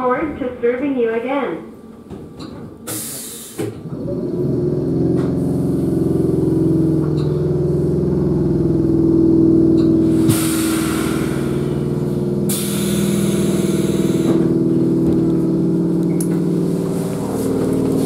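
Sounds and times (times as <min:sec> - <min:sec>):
train equipment humming: 0:01.7 - 0:18.0
brake air hiss: 0:02.8 - 0:03.8, 0:10.0 - 0:14.5.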